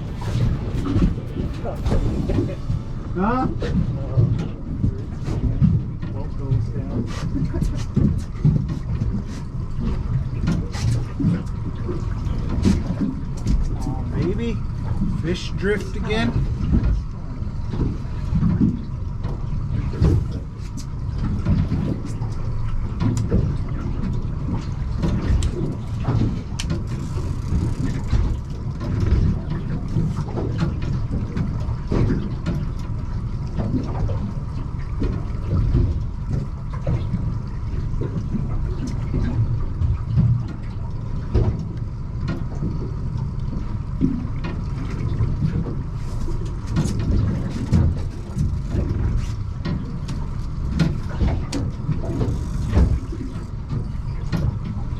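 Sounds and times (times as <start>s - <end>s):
faint steady hum: 0.0s - 6.9s
boat low rumble: 0.0s - 54.9s
knocks and splashes: 0.0s - 54.9s.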